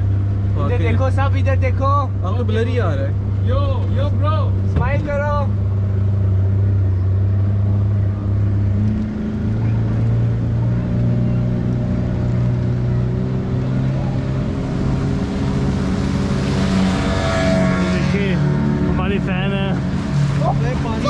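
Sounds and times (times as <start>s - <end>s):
motorboat engine running: 0.0s - 21.0s.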